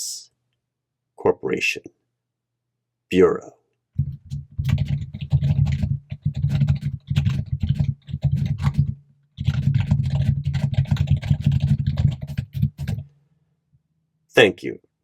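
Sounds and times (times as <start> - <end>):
fast typing on computer keyboard: 4.0 - 13.1.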